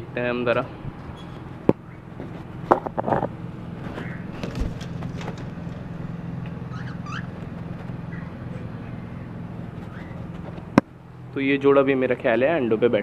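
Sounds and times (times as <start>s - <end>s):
steady low hum: 0.0s - 13.0s
cage knocking and rattling: 4.0s - 5.9s
cockatiels chirping: 6.6s - 9.2s.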